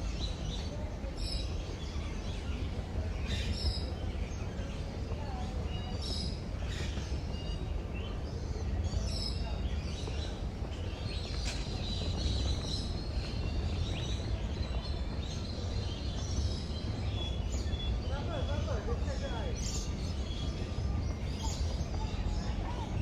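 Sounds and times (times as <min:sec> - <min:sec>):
low background rumble: 0:00.0 - 0:23.0
birds chirping and calling: 0:00.1 - 0:23.0.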